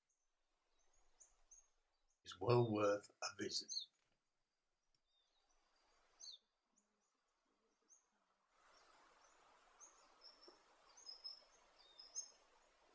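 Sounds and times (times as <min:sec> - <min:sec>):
faint outdoor hiss: 0:00.0 - 0:12.9.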